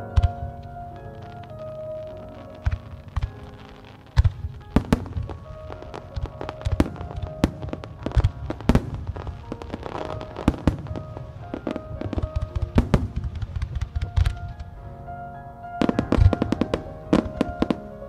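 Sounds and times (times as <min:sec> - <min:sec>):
music playing: 0:00.0 - 0:18.0
fireworks bangs and rumble: 0:02.4 - 0:14.7.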